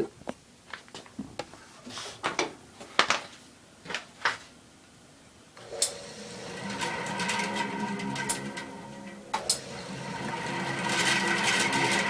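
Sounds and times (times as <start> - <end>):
bandsaw motor humming: 5.6 - 12.0.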